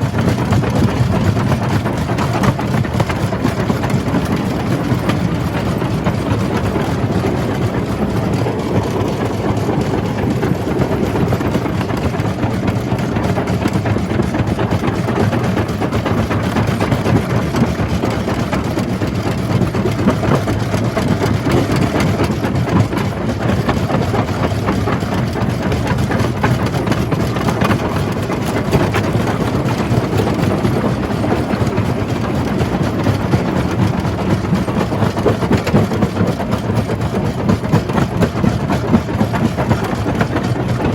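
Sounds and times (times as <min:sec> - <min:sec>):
low machine drone: 0:00.0 - 0:40.9.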